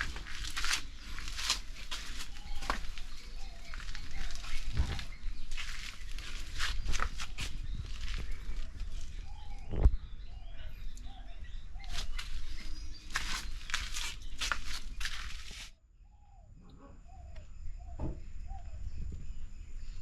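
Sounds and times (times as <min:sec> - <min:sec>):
crackling rustle and handling noise: 0:00.0 - 0:09.8, 0:11.8 - 0:15.7
small birds chirping: 0:00.0 - 0:20.0
sharp thump: 0:18.0 - 0:18.2.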